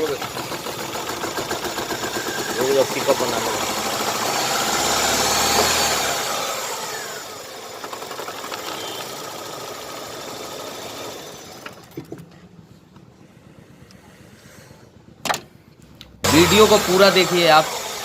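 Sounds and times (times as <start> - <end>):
car engine revving: 2.1 - 7.3, 16.2 - 18.0.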